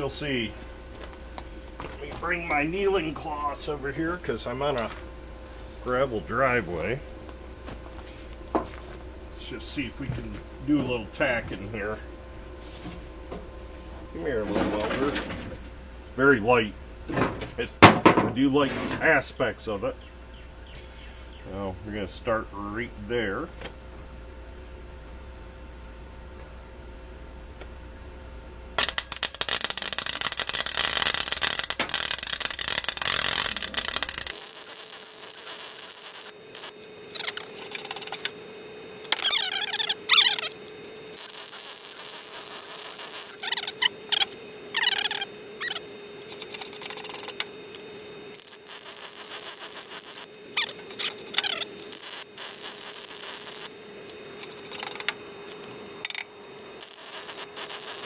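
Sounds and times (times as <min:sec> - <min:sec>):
arc welder burning: 0:00.0 - 0:13.3, 0:28.7 - 0:58.0
steady hum: 0:00.0 - 0:58.0.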